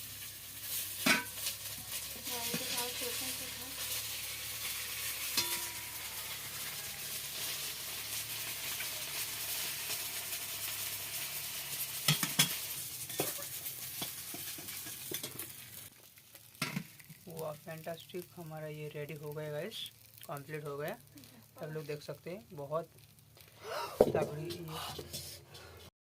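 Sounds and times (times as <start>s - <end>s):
fish frying in hot oil: 0.0s - 23.6s
utensil clinking against pan: 5.4s - 5.8s.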